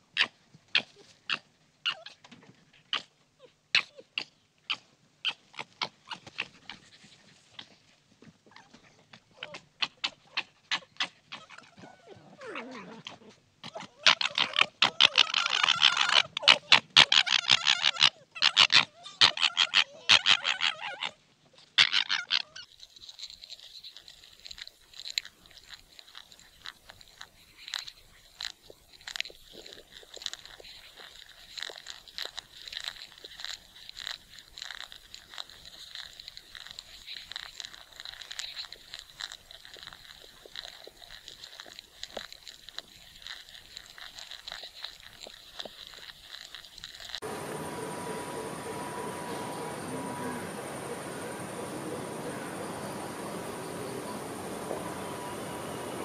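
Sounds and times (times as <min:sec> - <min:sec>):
fox crunching carrot: 0:03.8 - 0:49.3
faint high-pitched tone: 0:47.2 - 0:56.0.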